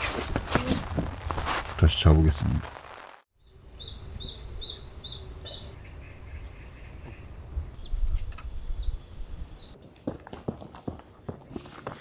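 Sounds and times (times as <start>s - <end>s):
high thin bird chirps: 3.4s - 9.8s.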